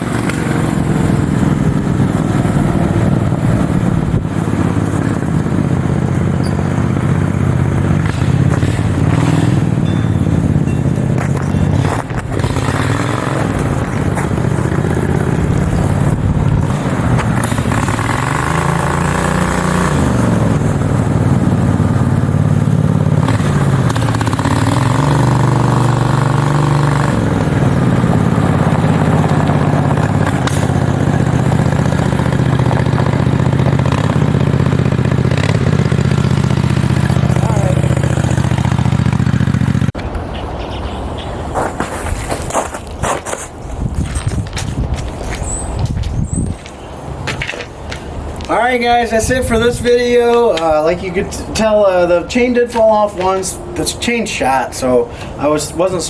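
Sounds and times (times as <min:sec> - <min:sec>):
mini bike engine under load: 0:00.0 - 0:40.0.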